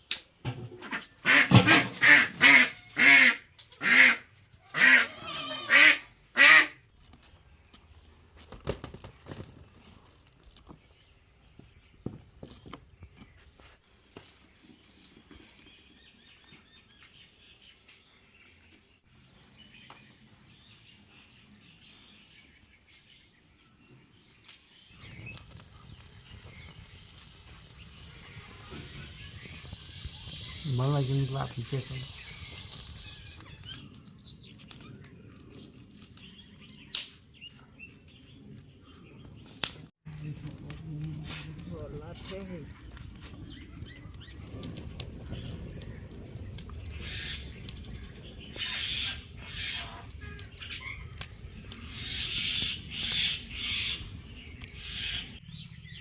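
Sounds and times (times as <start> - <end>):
duck quacking: 0.9 - 6.8.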